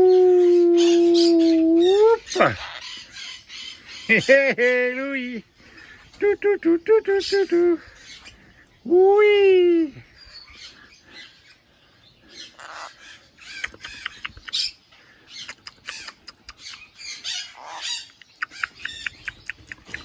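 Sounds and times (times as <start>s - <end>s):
parrot squawking: 0.8s - 4.1s, 15.9s - 18.8s.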